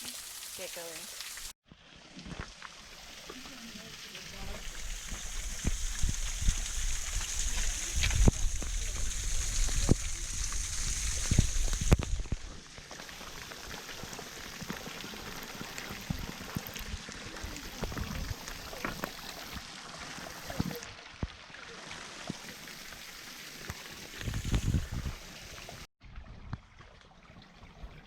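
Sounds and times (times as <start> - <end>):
small waterfall rushing: 0.0 - 1.5
water drips: 0.0 - 1.6, 2.2 - 12.3.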